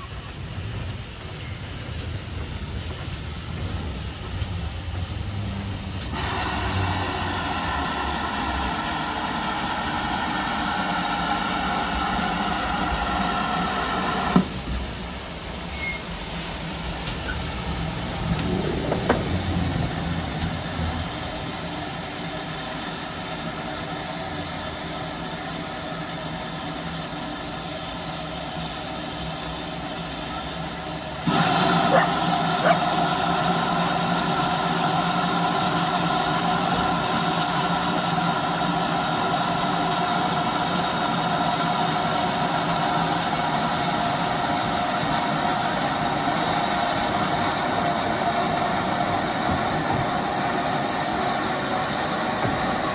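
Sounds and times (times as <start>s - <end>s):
vehicle running noise: 0.0s - 10.0s, 15.7s - 52.9s.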